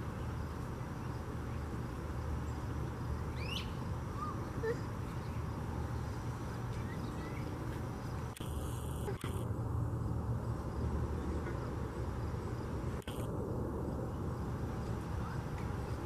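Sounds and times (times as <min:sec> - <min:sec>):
faint bird calls: 0:03.4 - 0:05.4
steady low rumble: 0:04.9 - 0:16.0.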